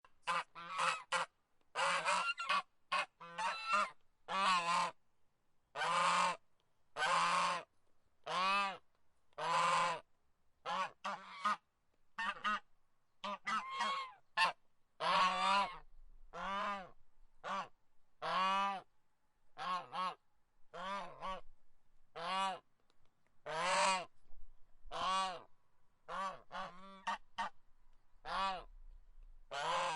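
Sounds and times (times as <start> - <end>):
goose honking: 0.2 - 5.0, 5.8 - 6.4, 9.4 - 10.0, 10.7 - 11.6, 13.2 - 18.8, 23.5 - 24.1, 24.9 - 25.5, 26.1 - 27.5, 28.2 - 28.7, 29.5 - 29.9.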